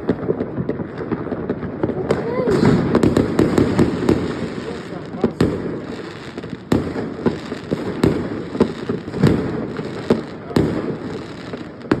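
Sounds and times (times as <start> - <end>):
fireworks bangs: 0.0 - 12.0
fireworks crackle: 0.0 - 12.0.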